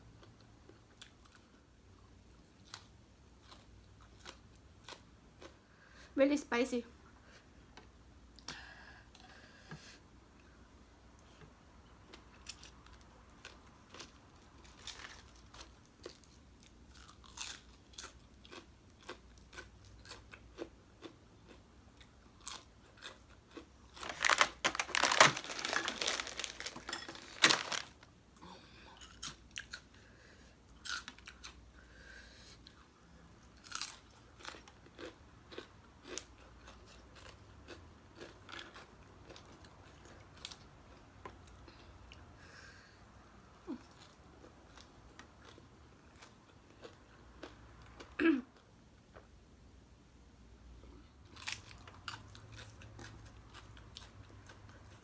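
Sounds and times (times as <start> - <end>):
person chewing with crunches: 2.4 - 5.7, 12.0 - 28.1, 28.9 - 30.0, 30.7 - 31.6, 32.6 - 42.3, 43.7 - 49.3, 50.8 - 55.0.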